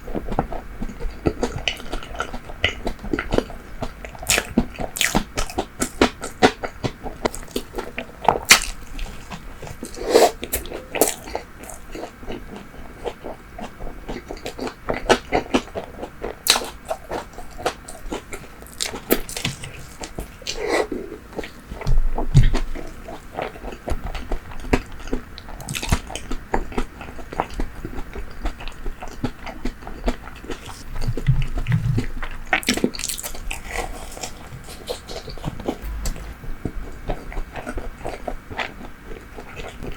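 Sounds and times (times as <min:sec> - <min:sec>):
chewing bread and pastry: 0:00.0 - 0:35.9
low thuds: 0:35.8 - 0:37.3.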